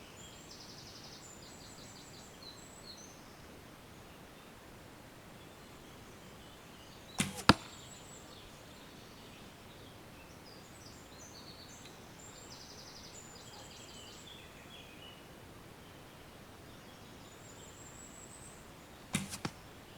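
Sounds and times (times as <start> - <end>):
faint birdsong: 0.0 - 19.9
bow string release snap: 7.2 - 7.8, 19.2 - 19.7
arrow striking target: 7.2 - 8.0, 19.1 - 19.9.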